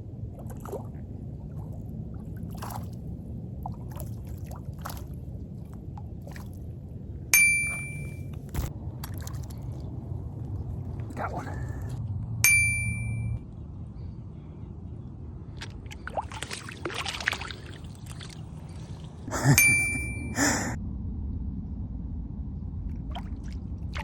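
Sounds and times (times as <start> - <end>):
water splashing and sloshing: 0.0 - 11.2, 15.5 - 19.3, 23.0 - 24.0
short metallic dings: 7.4 - 8.2, 12.4 - 13.4, 19.5 - 20.7.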